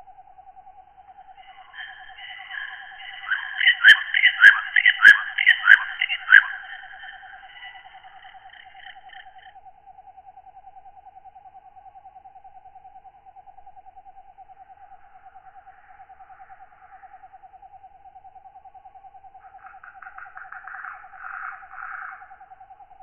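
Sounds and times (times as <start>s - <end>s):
fast-pulsing insect trill: 1.1s - 10.2s
rasping katydid calls: 1.4s - 9.5s, 19.4s - 22.4s.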